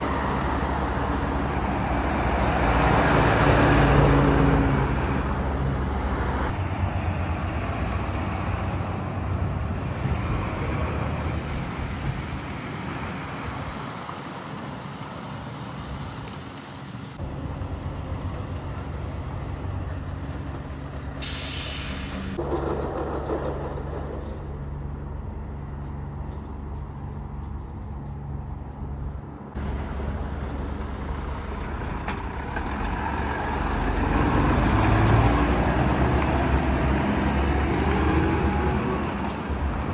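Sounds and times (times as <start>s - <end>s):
diesel truck engines: 0.0s - 39.9s
short sharp hiss: 21.2s - 22.4s.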